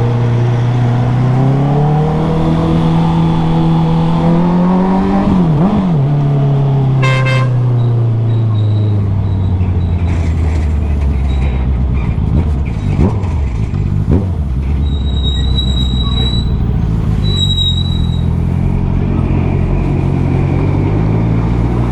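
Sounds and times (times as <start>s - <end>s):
road and wind noise: 0.0s - 21.9s
motorcycle engine running: 8.4s - 21.9s.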